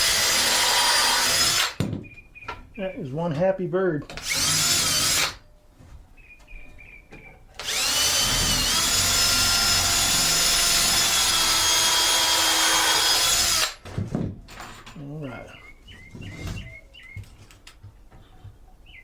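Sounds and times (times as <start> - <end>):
cordless drill driving screws: 0.0 - 1.8, 4.1 - 5.4, 7.6 - 13.8
bird chirping faintly: 6.0 - 7.6, 15.0 - 17.4.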